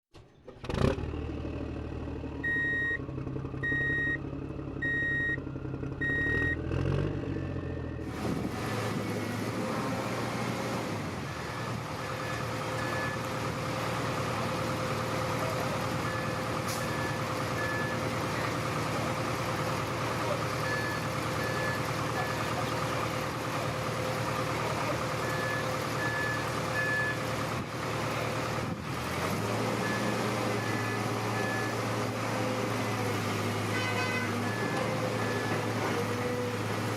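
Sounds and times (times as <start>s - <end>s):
low simulated engine rumble: 0.2s - 8.4s
electronic reversing beeps: 2.4s - 3.0s, 3.6s - 4.2s, 4.8s - 5.4s, 6.0s - 6.6s, 11.3s - 13.3s.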